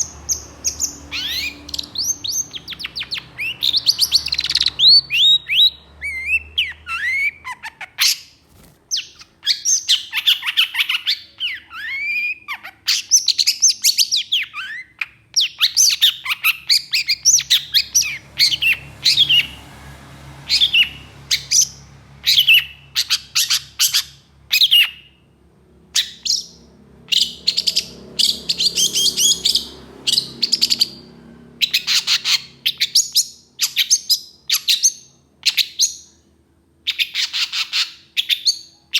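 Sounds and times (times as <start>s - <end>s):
shrike singing varied chirps: 0.0s - 19.6s, 25.9s - 36.2s.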